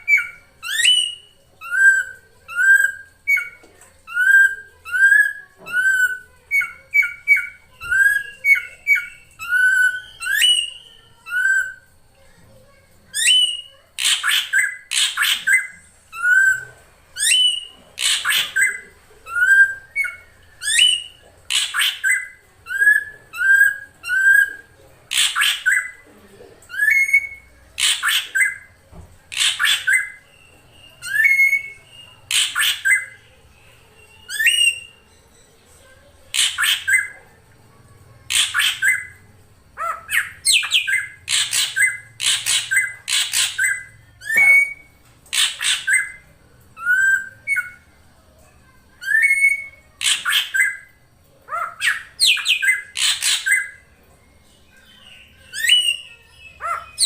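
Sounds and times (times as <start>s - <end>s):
bird calling harsh rasping notes: 13.1s - 26.0s, 26.7s - 37.2s, 38.3s - 47.9s, 48.6s - 54.0s.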